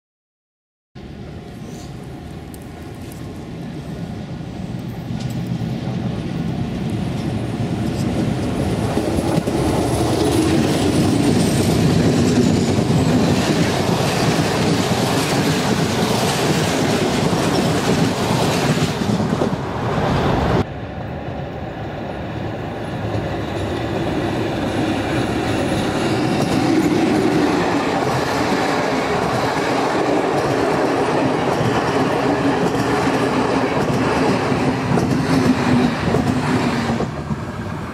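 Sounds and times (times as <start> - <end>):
train wheels clattering over rail joints: 25.6 - 37.5.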